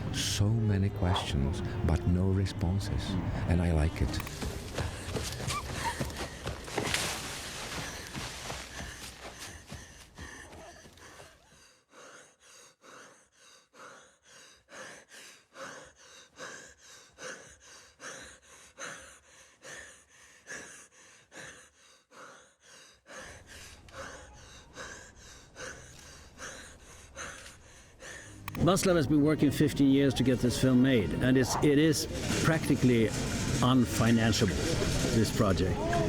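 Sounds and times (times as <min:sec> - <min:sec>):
person panting: 0:04.4 - 0:28.4.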